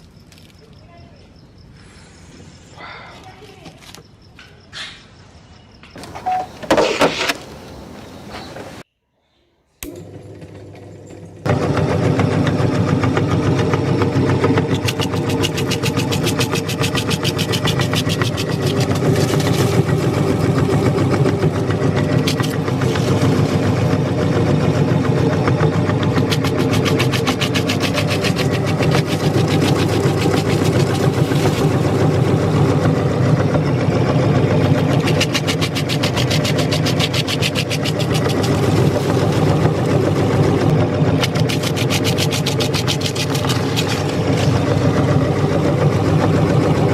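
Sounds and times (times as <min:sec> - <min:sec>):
meat grinder motor humming: 0:09.8 - 0:46.9
cookie crackling in grinder: 0:09.9 - 0:46.8.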